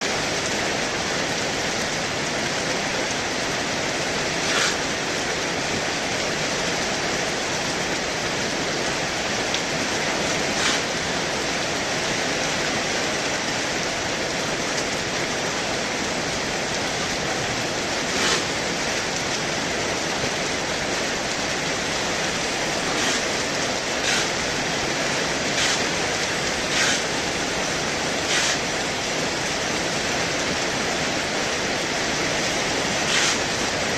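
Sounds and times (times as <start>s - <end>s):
heavy rain pouring: 0.0s - 33.9s.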